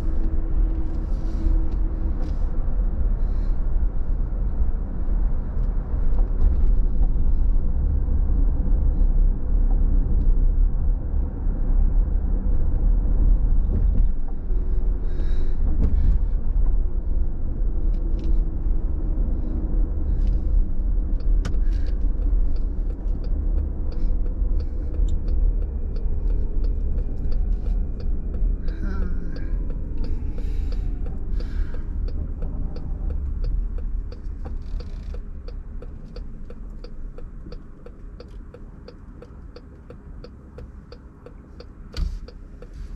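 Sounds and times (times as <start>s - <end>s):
car driving on wet road: 17.8s - 42.9s
faint ticks: 21.2s - 42.9s.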